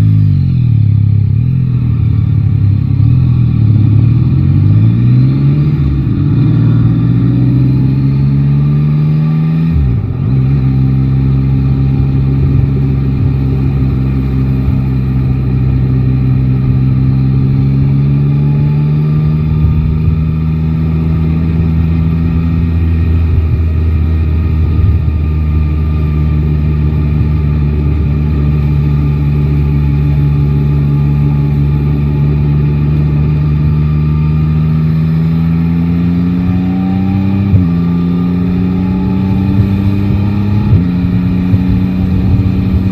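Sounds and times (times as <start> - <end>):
motorcycle engine revving: 0.0 - 42.9
gear change: 36.2 - 42.9.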